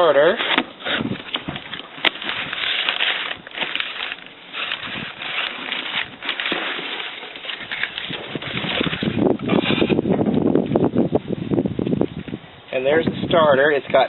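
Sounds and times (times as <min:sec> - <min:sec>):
cardboard box rustling: 0:00.0 - 0:10.1.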